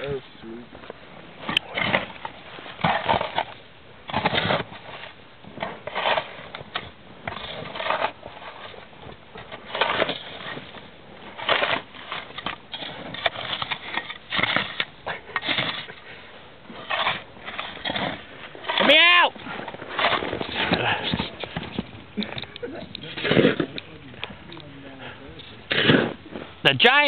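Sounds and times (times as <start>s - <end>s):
packed snow crunching and scraping: 0.0s - 27.0s.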